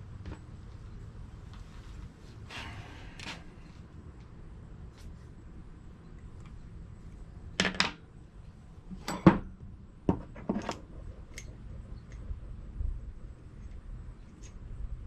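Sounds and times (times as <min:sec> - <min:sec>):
metal tools clinking and clanking: 0:08.9 - 0:09.5.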